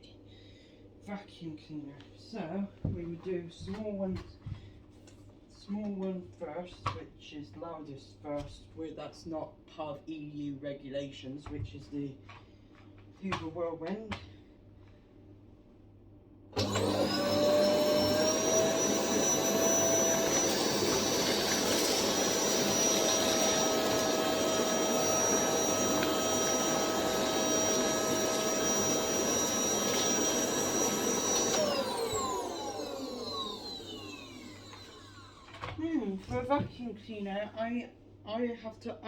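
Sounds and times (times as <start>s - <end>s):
vacuum cleaner motor whine: 16.6s - 35.8s.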